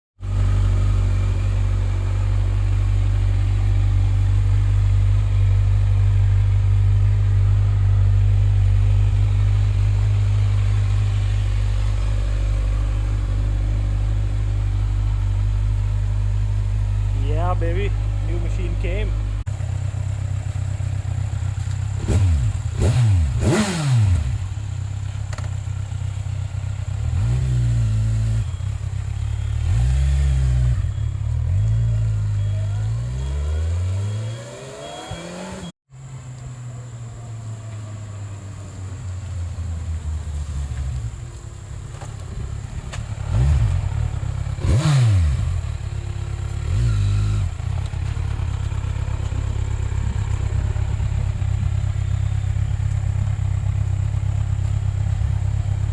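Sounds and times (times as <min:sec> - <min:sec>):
motorcycle engine revving: 0:00.2 - 0:55.9.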